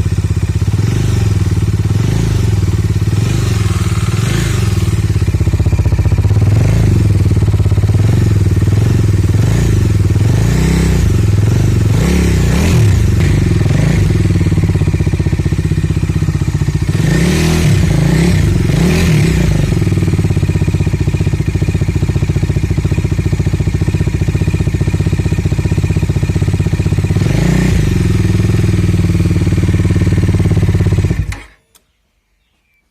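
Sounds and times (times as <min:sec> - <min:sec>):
motorcycle engine exhaust note: 0:00.0 - 0:31.4.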